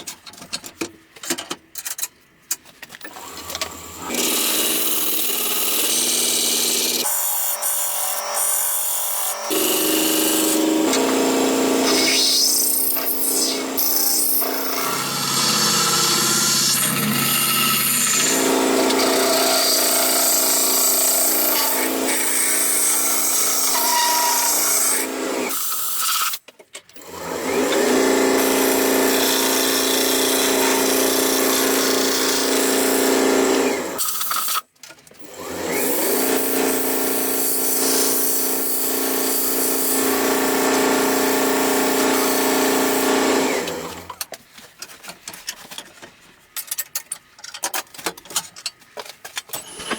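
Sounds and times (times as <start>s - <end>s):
power tool grinding wood: 3.2s - 25.6s, 27.1s - 34.0s, 35.4s - 44.2s.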